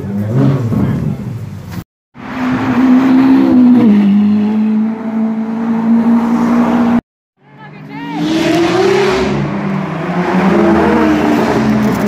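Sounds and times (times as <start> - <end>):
car engine at high revs: 2.2 - 7.0, 8.2 - 12.0.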